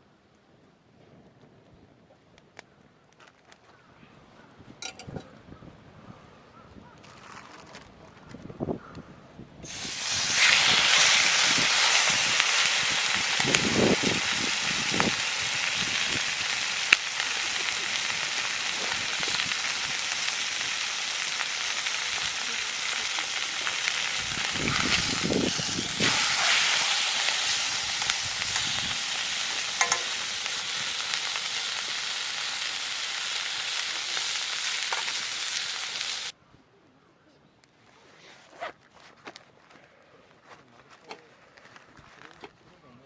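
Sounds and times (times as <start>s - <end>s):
utensils knocking on a pan: 4.8s - 5.2s, 29.8s - 30.2s
food sizzling in a frying pan: 9.6s - 36.3s.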